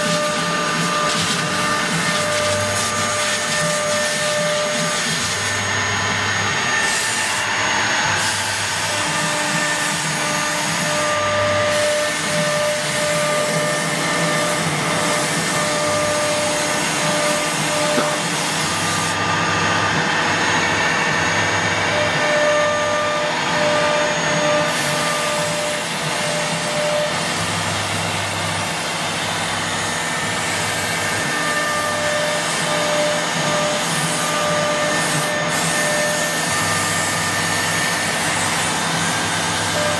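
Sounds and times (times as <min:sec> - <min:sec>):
wood router cutting: 0:00.0 - 0:39.9.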